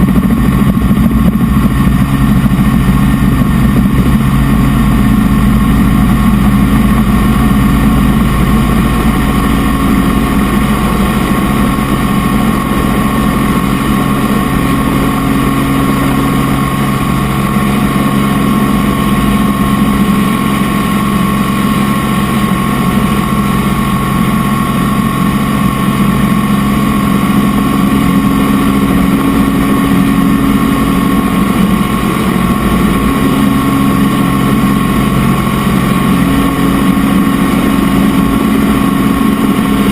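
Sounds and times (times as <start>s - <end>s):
helicopter engine and rotor drone: 0.0s - 39.9s
high-pitched whine: 0.0s - 39.9s.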